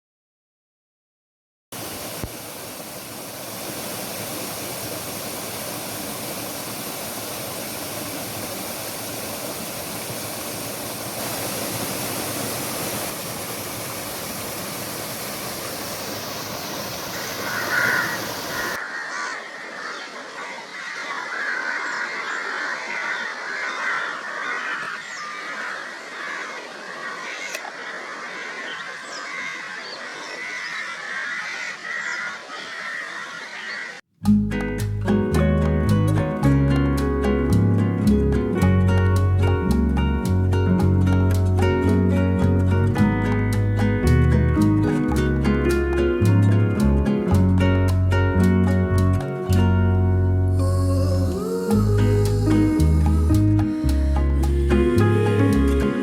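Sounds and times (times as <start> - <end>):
rush of falling water: 1.8 - 22.1
birds chattering: 16.8 - 34.0.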